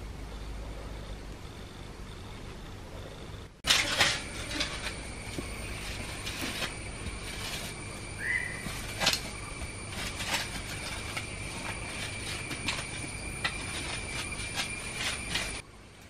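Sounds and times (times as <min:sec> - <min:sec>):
high-pitched insect drone: 0:04.6 - 0:15.6.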